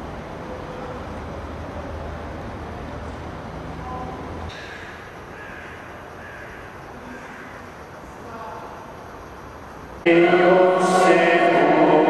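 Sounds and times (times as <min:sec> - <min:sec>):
bird calling: 0:04.5 - 0:07.7.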